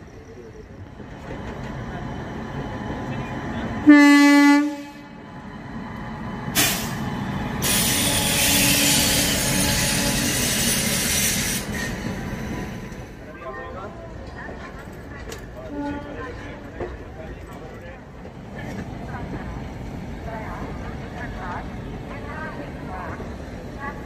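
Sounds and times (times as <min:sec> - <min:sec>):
train rumbling: 0:00.0 - 0:24.0
train horn blast: 0:03.8 - 0:05.2, 0:07.7 - 0:10.5.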